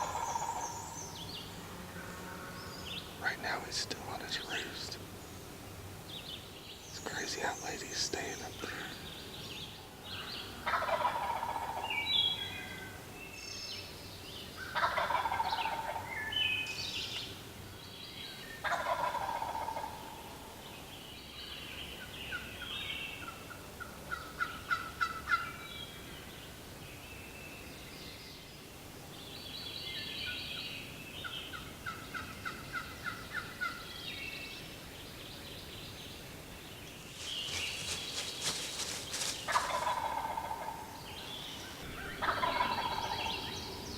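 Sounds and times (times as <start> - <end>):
turkey gobbling: 0.0 - 0.7, 10.6 - 11.8, 14.8 - 16.0, 18.6 - 20.1, 38.8 - 40.9, 41.9 - 43.7
small birds chirping: 0.0 - 19.6, 20.3 - 43.9.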